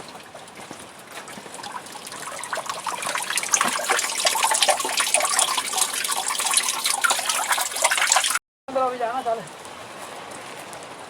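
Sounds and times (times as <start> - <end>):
water rushing and splashing: 0.0 - 8.4.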